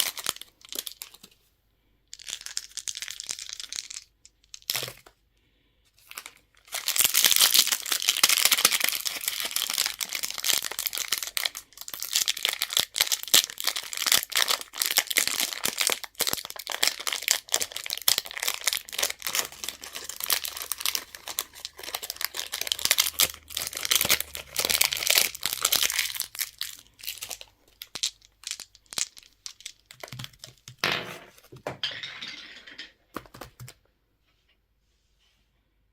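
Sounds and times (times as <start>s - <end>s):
plastic wrappers crinkling: 0.0s - 1.4s, 6.0s - 30.8s.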